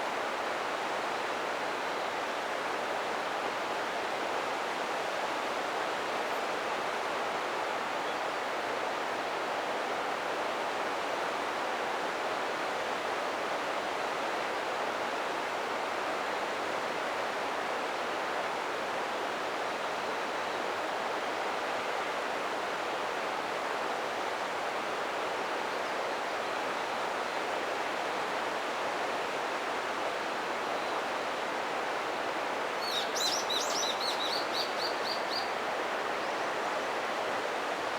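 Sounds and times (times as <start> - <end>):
bird chirping: 32.8 - 35.5.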